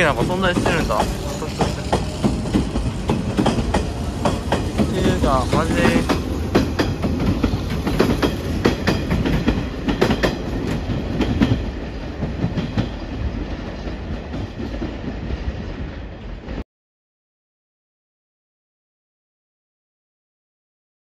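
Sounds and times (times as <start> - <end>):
train wheels clicking over joints: 0.0 - 16.1
train rumble: 0.0 - 16.6.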